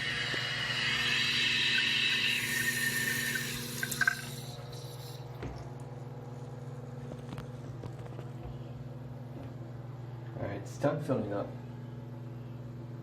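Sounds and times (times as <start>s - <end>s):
toilet tank refilling with hissing water: 0.0s - 5.8s
water drips: 1.7s - 5.9s.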